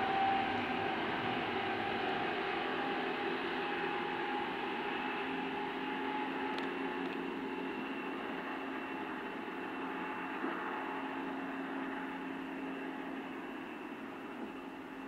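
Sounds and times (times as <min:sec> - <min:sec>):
distant electric train humming: 0:00.0 - 0:15.0.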